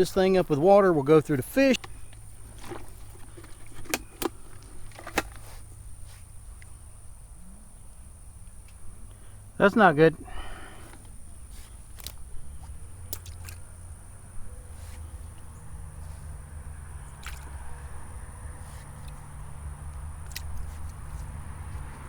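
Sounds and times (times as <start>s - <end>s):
water dripping and squishing: 11.5s - 13.8s, 17.0s - 22.0s.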